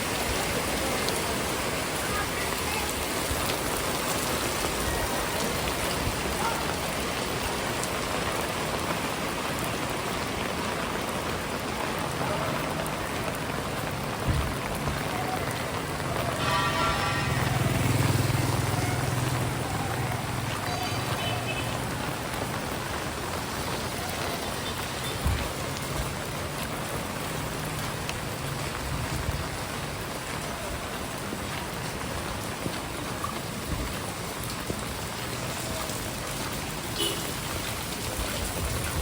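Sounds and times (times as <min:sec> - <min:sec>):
heavy rain falling: 0:00.0 - 0:39.0
vehicle engine passing: 0:16.9 - 0:22.2.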